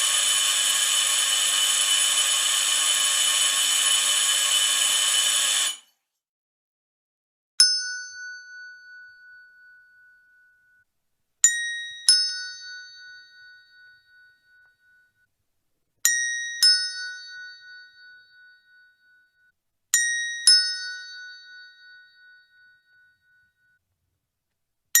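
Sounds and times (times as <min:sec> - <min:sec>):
harsh buzz: 0:00.0 - 0:05.9.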